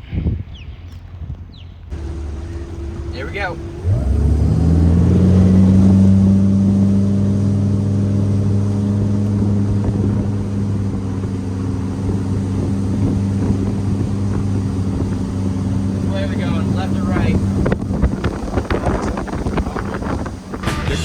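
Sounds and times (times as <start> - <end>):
motorboat engine running: 1.9 - 21.0.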